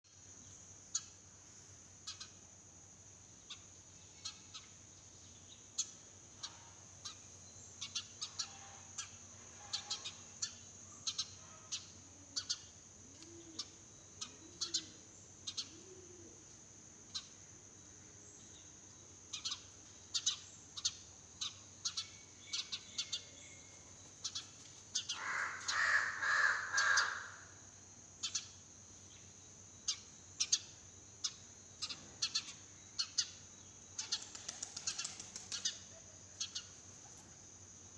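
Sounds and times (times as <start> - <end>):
sparrows chirping: 3.4 - 16.0, 18.3 - 27.3, 28.2 - 37.0
crow cawing: 25.0 - 27.6.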